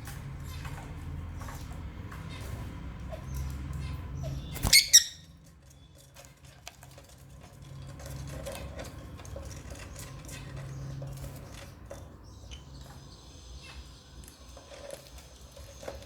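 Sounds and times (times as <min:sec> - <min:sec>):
lovebirds chirping shrilly: 0:04.2 - 0:05.3.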